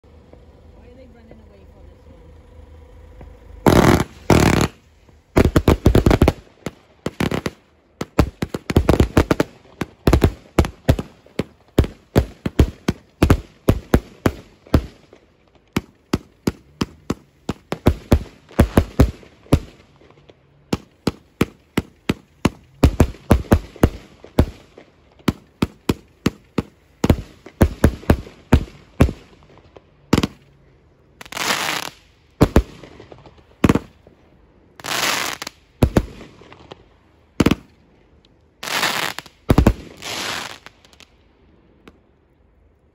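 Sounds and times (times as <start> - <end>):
firework cake bangs and bursts: 3.7 - 19.9, 20.7 - 29.4, 38.6 - 40.7.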